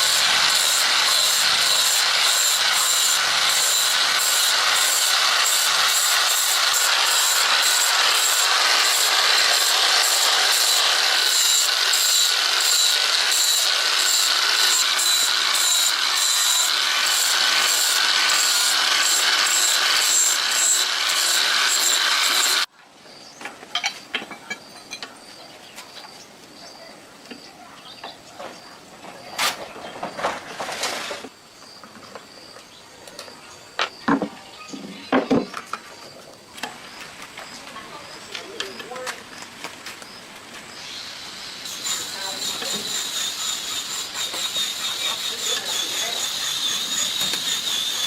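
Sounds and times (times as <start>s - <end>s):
power tool rasping on metal: 0.0s - 22.7s, 40.8s - 48.0s.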